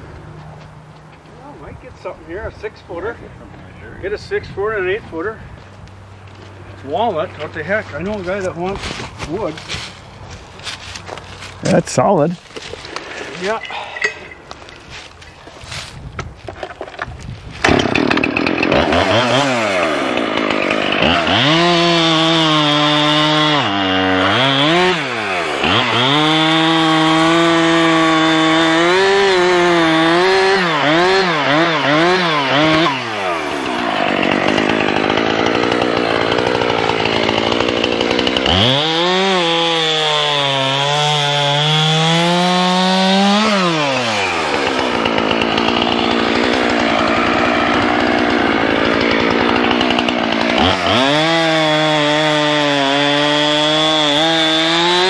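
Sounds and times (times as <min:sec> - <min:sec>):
chainsaw cutting log: 0:06.8 - 0:55.0
chainsaw revving: 0:10.6 - 0:14.6, 0:17.6 - 0:55.0.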